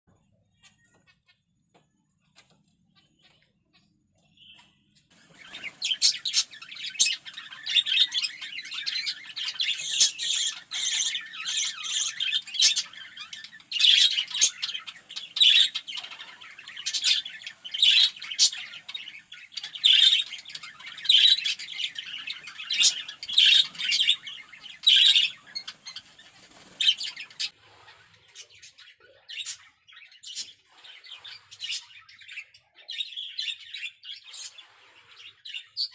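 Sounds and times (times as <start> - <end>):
finches calling: 5.2 - 27.5.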